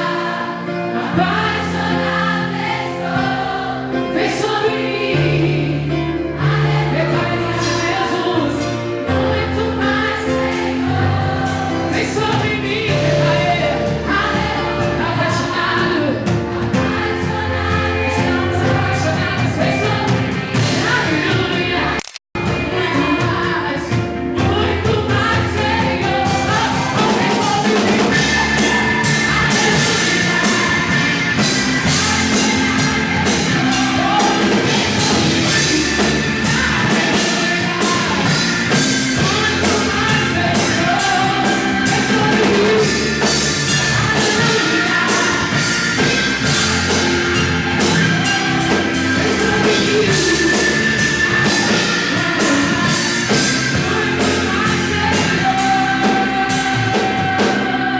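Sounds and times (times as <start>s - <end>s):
live band playing worship music: 0.0s - 57.9s
steady drum beat: 6.5s - 57.9s
singing: 22.6s - 57.9s.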